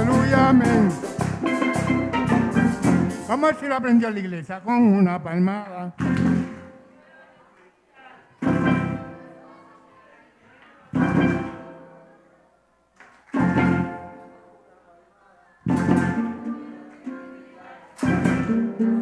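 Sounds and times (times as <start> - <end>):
acoustic guitar chords strummed: 0.0 - 3.4, 13.4 - 14.2, 18.0 - 18.9.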